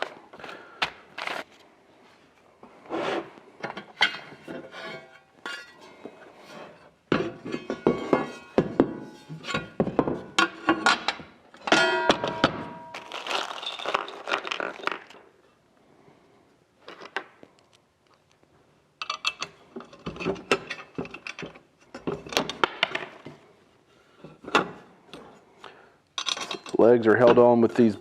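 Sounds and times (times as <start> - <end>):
metal parts knocking and clinking: 7.1 - 15.2, 19.0 - 23.2, 26.2 - 27.4.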